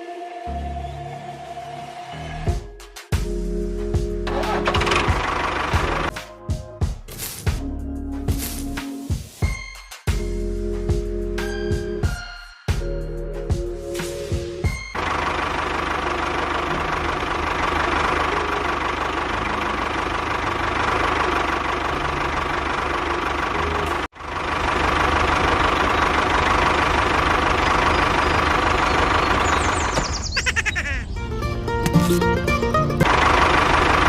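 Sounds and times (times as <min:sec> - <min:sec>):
small engine running: 0:04.3 - 0:06.1, 0:15.0 - 0:30.0, 0:33.0 - 0:34.0.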